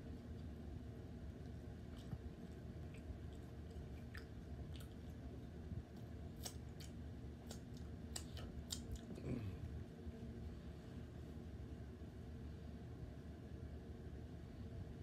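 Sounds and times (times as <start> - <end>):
person chewing food: 1.3 - 9.8.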